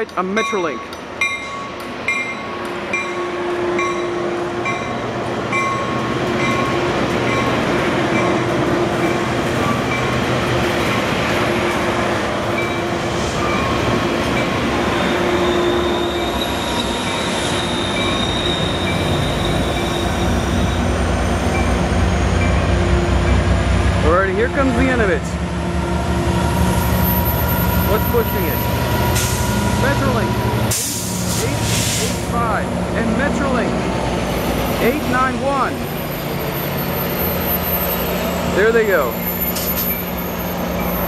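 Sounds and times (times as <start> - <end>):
diesel locomotive rumble: 0.0 - 41.0
high wheel squeal: 14.8 - 21.8, 26.5 - 29.7, 35.7 - 41.0.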